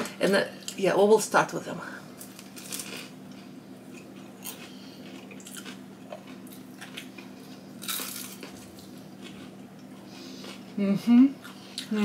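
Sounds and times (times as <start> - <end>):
steady low hum: 0.0 - 12.0
crunching bites and chewing: 2.2 - 9.9.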